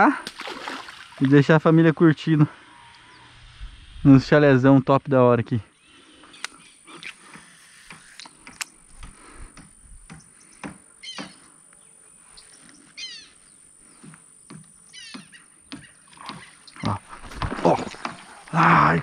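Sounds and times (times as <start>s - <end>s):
faint scattered clicks: 6.3s - 9.7s.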